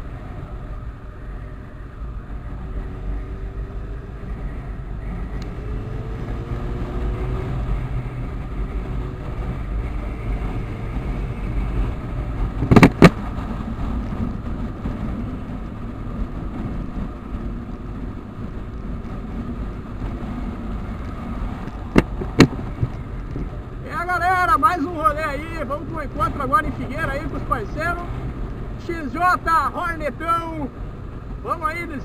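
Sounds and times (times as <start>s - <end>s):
motorcycle engines running: 0.0s - 32.0s
wind rumble: 0.0s - 32.0s
sharp knocks: 12.6s - 13.2s, 21.9s - 22.6s.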